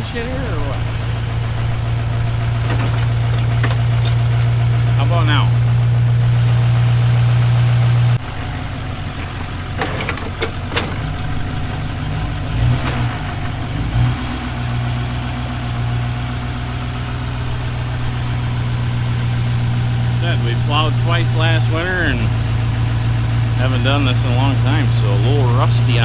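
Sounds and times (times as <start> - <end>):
truck engine idling: 0.0 - 26.0
metallic clunks and knocks: 1.4 - 6.1, 9.1 - 13.7.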